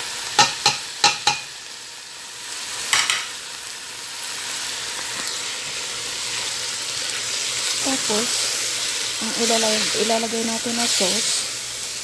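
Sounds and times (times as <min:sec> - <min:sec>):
chicken sizzling in pot: 0:00.0 - 0:12.0
sharp knock on pot: 0:00.4 - 0:01.5.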